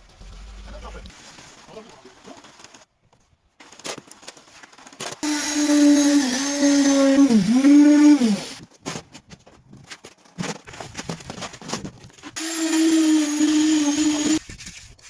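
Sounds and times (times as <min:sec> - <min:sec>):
electric power tool motor running: 0:05.2 - 0:08.6, 0:12.4 - 0:14.4.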